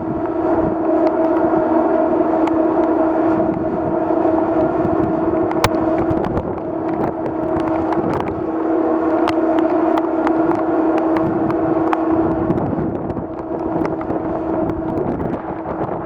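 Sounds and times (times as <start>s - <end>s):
ship's steady tone: 0.0s - 16.0s
water noise: 0.0s - 16.0s
wind: 0.0s - 16.0s
raindrops tapping microphone: 4.5s - 16.0s.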